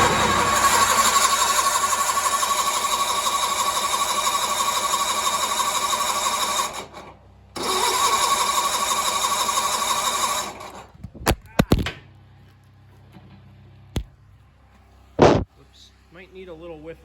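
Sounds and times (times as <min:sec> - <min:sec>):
starter cranking engine: 0:00.0 - 0:11.0.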